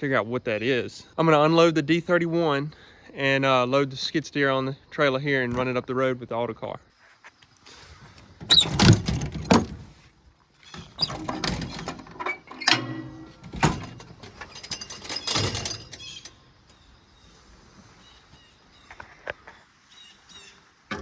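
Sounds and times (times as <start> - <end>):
heavy thunks and knocks: 8.5 - 9.9
faint rattling: 10.7 - 16.7.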